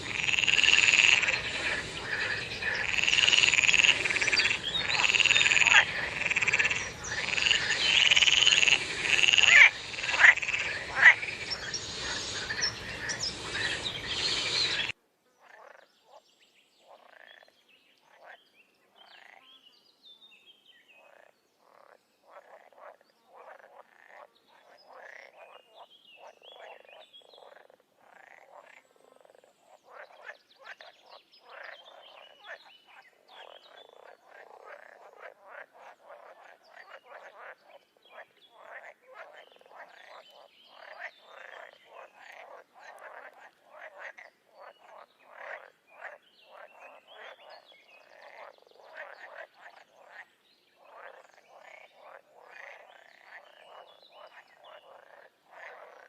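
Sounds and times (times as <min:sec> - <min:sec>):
frogs chorus calling: 0:00.0 - 0:14.9, 0:21.0 - 0:25.6, 0:26.2 - 0:56.0
short frog croaks: 0:00.0 - 0:14.9, 0:33.3 - 0:56.0.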